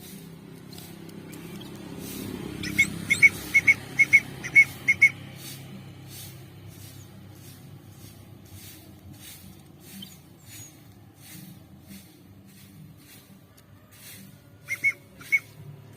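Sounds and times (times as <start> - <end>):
young songbird chirping: 2.6 - 5.2.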